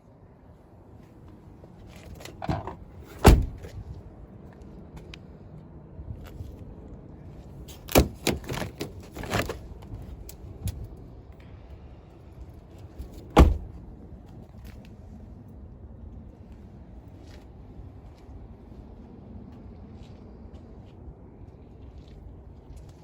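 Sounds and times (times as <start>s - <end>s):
car doors thumping: 2.2s - 3.8s, 7.8s - 9.6s, 13.0s - 13.8s.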